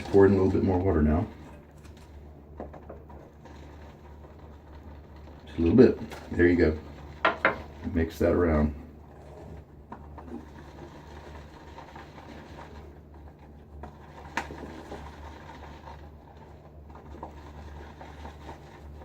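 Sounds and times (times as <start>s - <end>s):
shaving brush churning lather: 0.0s - 19.0s
steady low hum: 0.0s - 19.0s.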